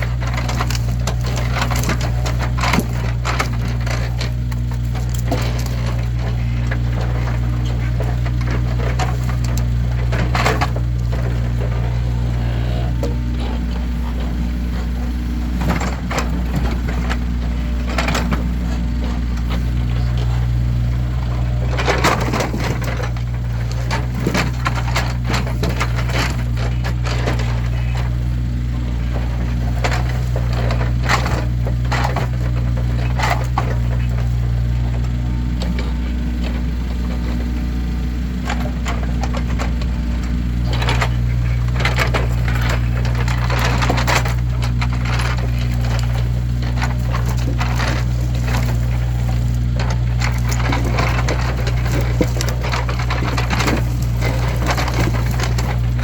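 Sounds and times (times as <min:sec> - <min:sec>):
firewood logs knocking: 0:00.0 - 0:56.0
steady low hum: 0:00.0 - 0:56.0.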